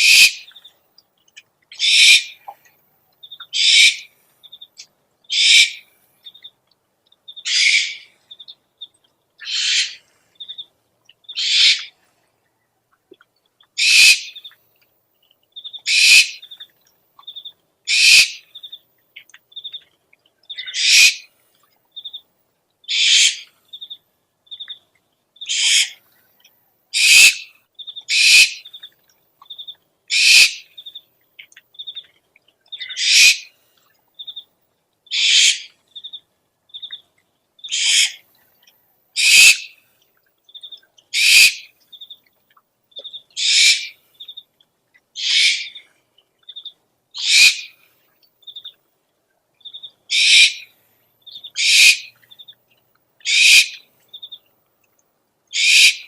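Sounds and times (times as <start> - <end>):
hissing owl screeches: 0.0 - 0.4, 1.8 - 2.4, 7.5 - 8.1, 9.4 - 10.0, 11.4 - 11.9, 13.8 - 14.3, 15.9 - 16.4, 17.9 - 18.4, 22.9 - 23.5, 25.5 - 26.0, 27.0 - 27.5, 30.1 - 30.6, 32.9 - 33.5, 35.1 - 35.7, 37.7 - 38.2, 39.2 - 39.7, 41.2 - 41.7, 43.4 - 43.9, 45.2 - 45.8, 47.2 - 47.7, 50.1 - 50.6, 51.6 - 52.1, 53.3 - 53.8, 55.6 - 56.0.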